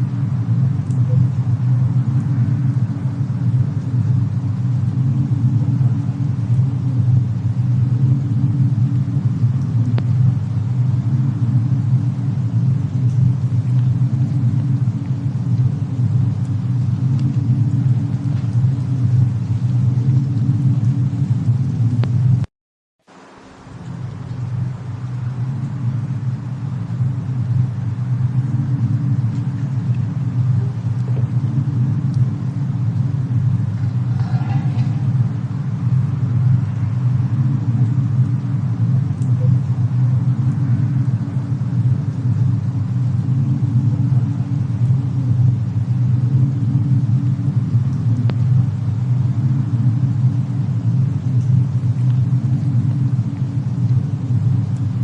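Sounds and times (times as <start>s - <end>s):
steady low rumble: 0.0s - 22.5s, 23.1s - 55.0s
faint sharp clicks: 0.8s - 1.0s.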